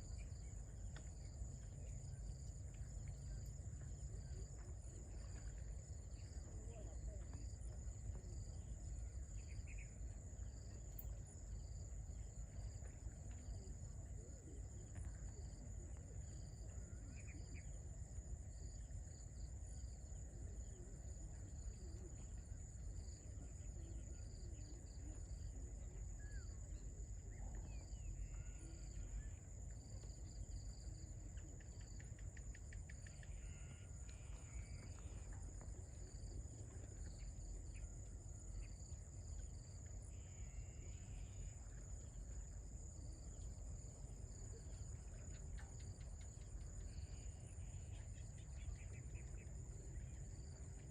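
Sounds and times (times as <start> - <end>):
faint bird chirps: 0.0 - 11.8, 14.3 - 17.9, 20.6 - 43.6, 44.3 - 50.9
insect pulsing: 21.7 - 37.9
insects trilling: 23.0 - 50.9.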